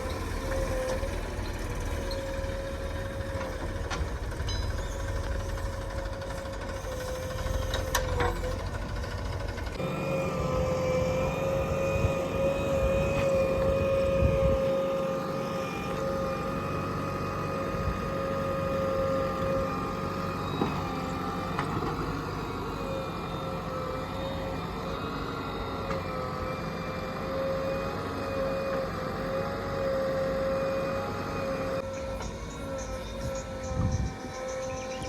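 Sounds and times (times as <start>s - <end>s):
diesel engine rumble: 0.0s - 35.0s
high-pitched machine whine: 9.8s - 35.0s.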